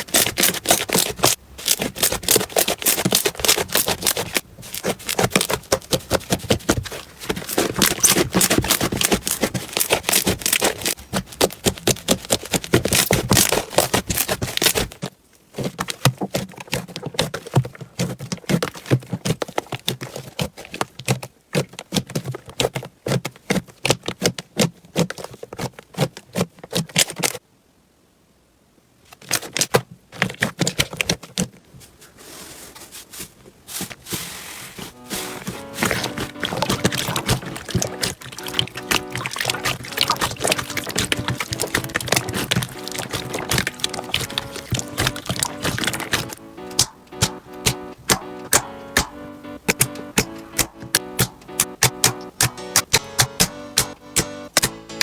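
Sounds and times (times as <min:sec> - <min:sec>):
slime crackling and popping: 0:00.0 - 0:15.1, 0:35.1 - 0:55.0.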